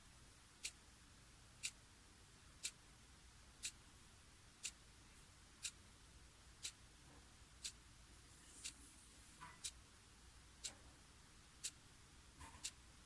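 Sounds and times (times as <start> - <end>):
clock ticking: 0.6 - 0.8, 1.6 - 1.8, 2.6 - 2.8, 3.6 - 3.8, 4.6 - 4.8, 5.6 - 5.8, 6.6 - 6.8, 7.6 - 7.8, 9.4 - 9.8, 10.6 - 10.8, 11.6 - 11.8, 12.4 - 12.8.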